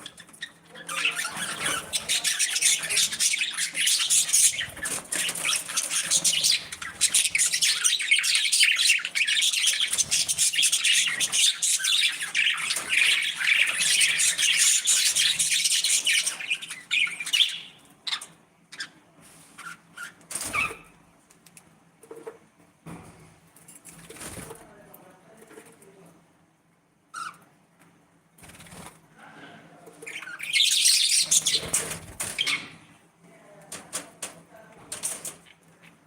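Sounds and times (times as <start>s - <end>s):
budgerigars chattering and chirping: 0.0s - 19.0s, 30.0s - 32.9s.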